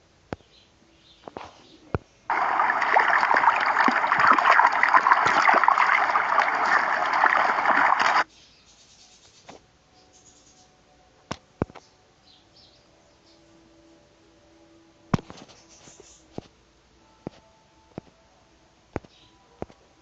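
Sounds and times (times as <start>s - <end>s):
water running and splashing: 2.3s - 8.3s.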